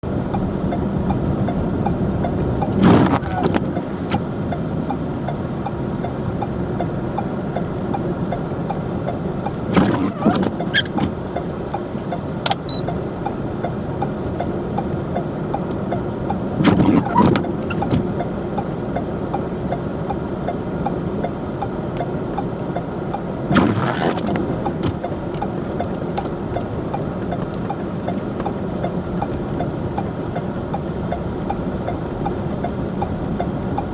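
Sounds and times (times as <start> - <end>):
car driving on snow: 0.0 - 33.9
fine regular ticking: 0.3 - 2.8, 4.5 - 9.8, 10.5 - 16.6, 24.2 - 33.9.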